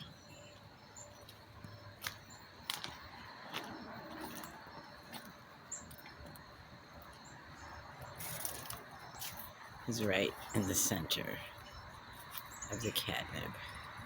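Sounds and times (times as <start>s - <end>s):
faint high bird chirps: 0.0s - 2.5s.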